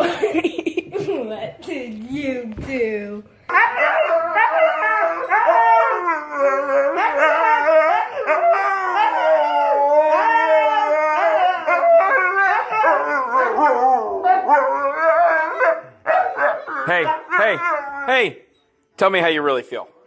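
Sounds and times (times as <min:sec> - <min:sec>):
dog howling and whining: 0:03.5 - 0:18.5.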